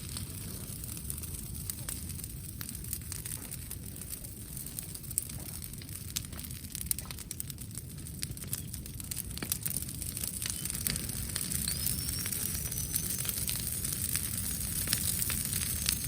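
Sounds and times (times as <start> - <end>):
campfire crackling and popping: 0.0 - 16.0
thin whistle: 11.5 - 13.5.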